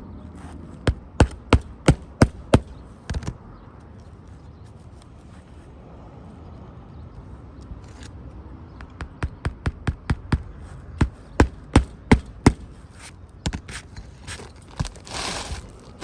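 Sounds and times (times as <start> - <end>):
hammer driving nails into shingles: 0.8 - 3.4, 8.9 - 12.8.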